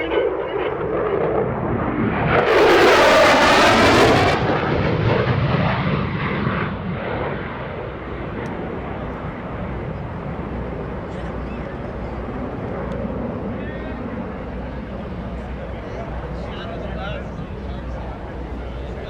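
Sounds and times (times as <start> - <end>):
jet passing: 0.0 - 19.0.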